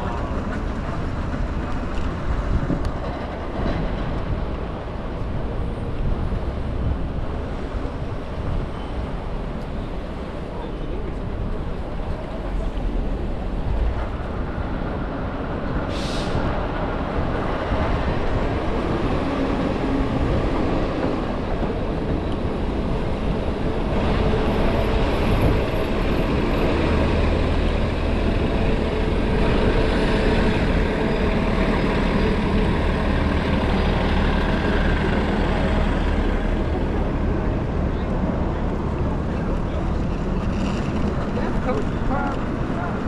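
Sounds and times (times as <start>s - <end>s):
street traffic: 0.0s - 43.0s
short hiss: 15.9s - 16.4s.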